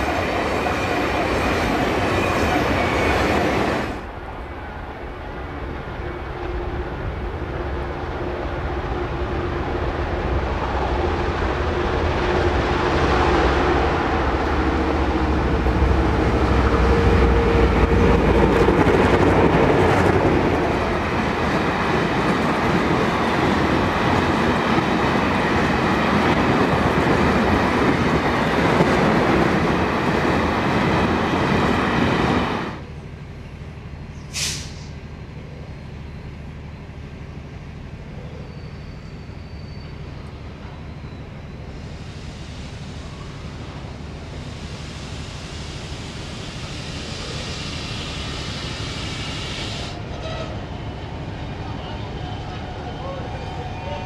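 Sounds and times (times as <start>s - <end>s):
diesel locomotive engines working hard: 0.0s - 54.0s.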